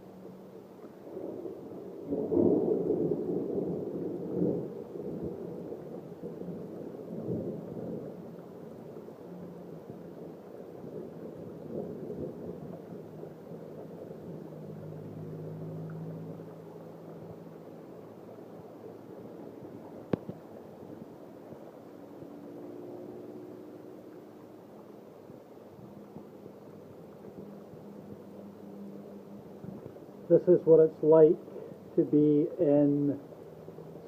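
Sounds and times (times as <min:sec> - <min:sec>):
thunder rumbling: 0:00.9 - 0:17.7, 0:25.2 - 0:34.0.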